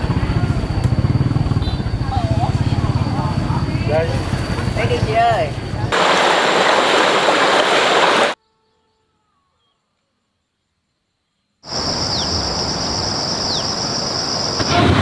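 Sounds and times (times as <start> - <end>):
falling chirps: 11.7 - 15.0.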